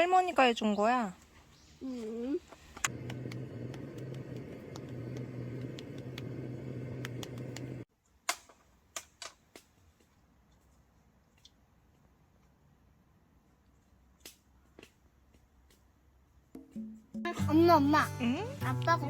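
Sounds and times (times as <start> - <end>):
small motor humming: 2.9 - 7.8.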